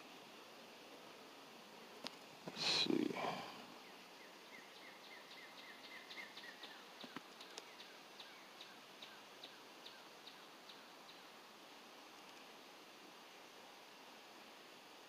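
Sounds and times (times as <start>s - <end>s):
bird chirping: 3.8s - 11.3s.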